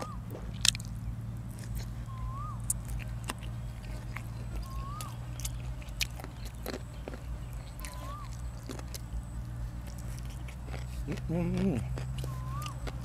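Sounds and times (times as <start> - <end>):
rising and falling chirp: 0.0 - 0.3, 1.8 - 5.7, 6.3 - 8.5, 12.2 - 12.9
person chewing food: 0.0 - 13.0
steady low hum: 0.0 - 13.0.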